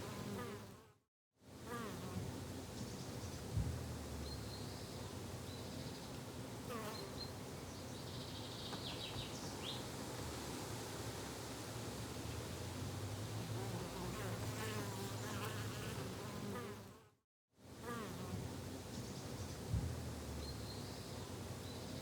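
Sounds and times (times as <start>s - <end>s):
bees and flies buzzing: 0.0s - 0.9s, 13.5s - 17.1s
soft thump: 19.7s - 20.1s.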